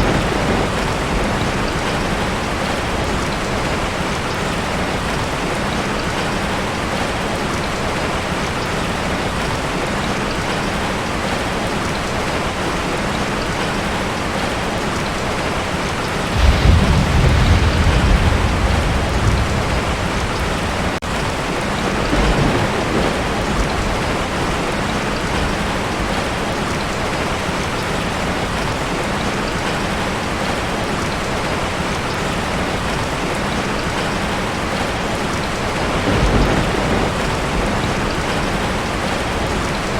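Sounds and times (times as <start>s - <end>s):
thunder rumbling: 0.0s - 7.3s, 15.6s - 26.6s, 34.3s - 39.9s
heavy rain on a tin roof: 0.0s - 39.9s.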